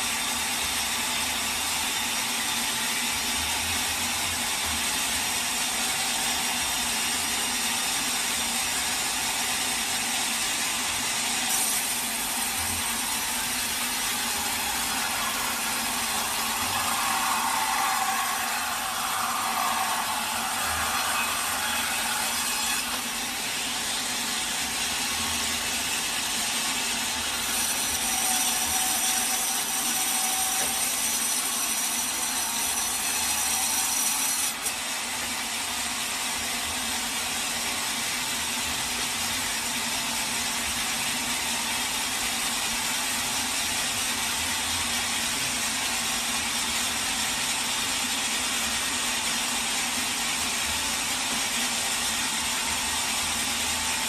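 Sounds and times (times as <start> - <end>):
saw cutting through log: 0.0 - 54.0
high thin whine: 11.8 - 23.8.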